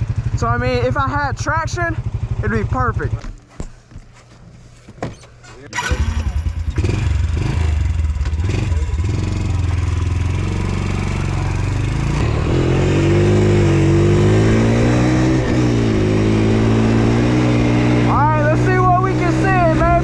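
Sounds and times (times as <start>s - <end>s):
dirt bike engine revving: 5.8s - 20.0s.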